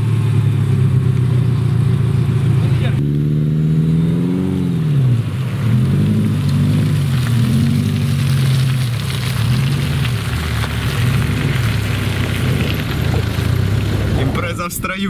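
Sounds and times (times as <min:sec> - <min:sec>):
car engines revving: 0:00.0 - 0:15.0
tyres churning through mud: 0:01.9 - 0:14.7.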